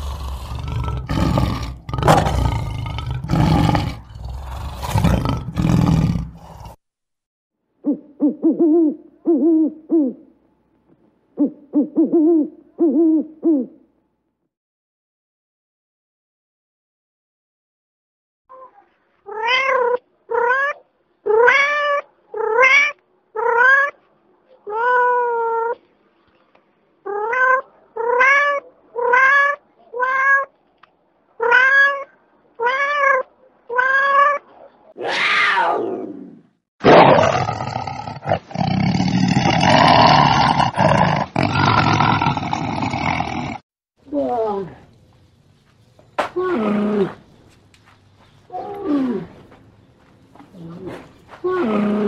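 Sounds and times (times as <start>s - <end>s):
tiger roaring: 0.0s - 6.8s, 35.0s - 43.6s
cat meowing: 18.5s - 24.0s, 24.6s - 25.8s, 27.1s - 30.5s, 31.4s - 35.8s.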